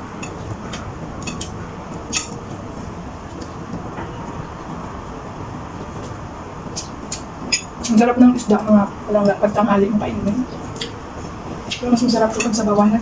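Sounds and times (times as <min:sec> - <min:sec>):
rumbling background noise: 0:00.0 - 0:13.0.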